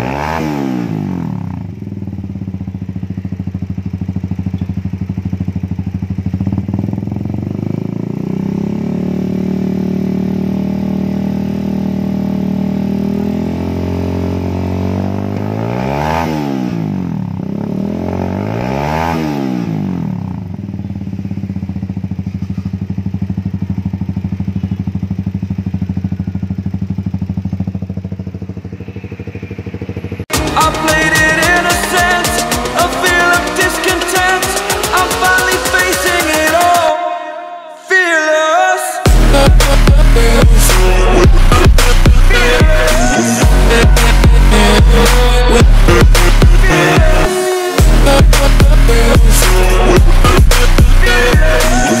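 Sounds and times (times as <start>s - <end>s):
motorcycle idling and revving: 0.0s - 37.0s, 39.0s - 52.0s
music: 30.3s - 37.1s, 39.1s - 52.0s.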